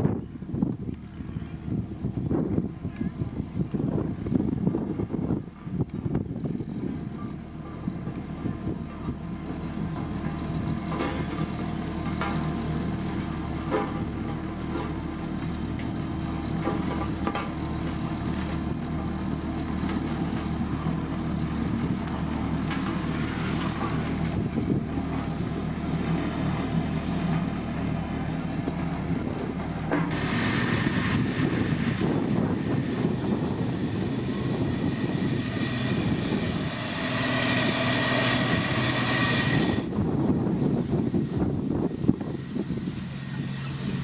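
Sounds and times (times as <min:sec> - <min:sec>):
diesel machinery engine rumble: 0:00.0 - 0:44.0
high whine: 0:30.0 - 0:44.0
loud hissy layer: 0:30.1 - 0:39.9.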